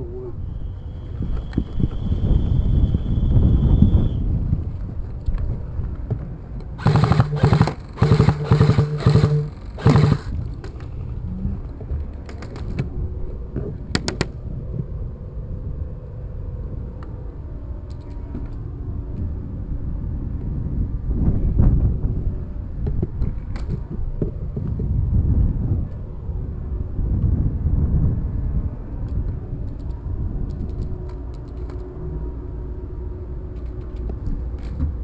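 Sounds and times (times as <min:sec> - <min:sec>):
low wind: 0:00.0 - 0:35.0
airsoft gun firing bursts: 0:06.8 - 0:10.4
handling noise: 0:06.8 - 0:10.4
sharp clicks: 0:06.8 - 0:10.4.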